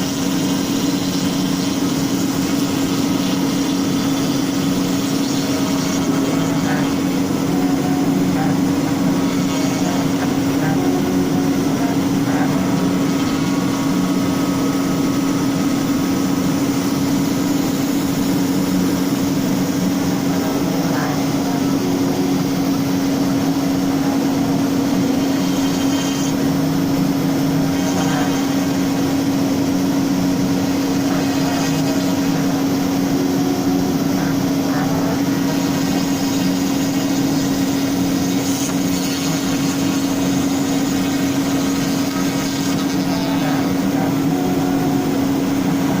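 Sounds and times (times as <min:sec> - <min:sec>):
router spindle cutting wood: 0:00.0 - 0:46.0.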